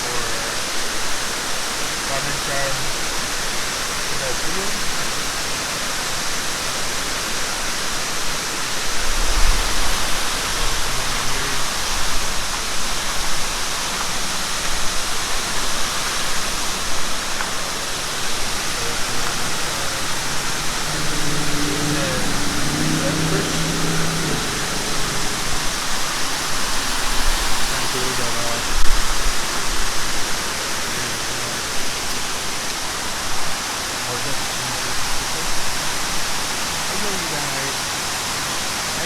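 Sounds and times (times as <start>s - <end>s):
running water rushing: 0.0s - 39.0s
faint low hum: 17.9s - 28.9s.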